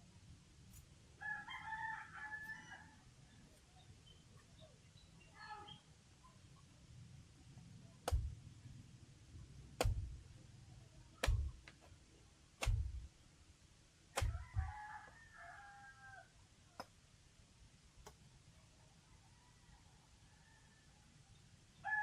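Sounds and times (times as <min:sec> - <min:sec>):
heavy chopping thuds: 0:08.1 - 0:08.4, 0:09.8 - 0:10.3, 0:11.2 - 0:11.7, 0:12.6 - 0:13.1, 0:14.2 - 0:14.7.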